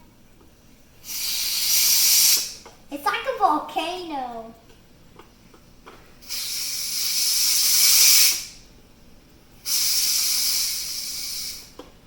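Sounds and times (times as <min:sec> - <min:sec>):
pressure cooker venting steam: 0:01.0 - 0:02.6, 0:06.2 - 0:08.6, 0:09.6 - 0:11.8.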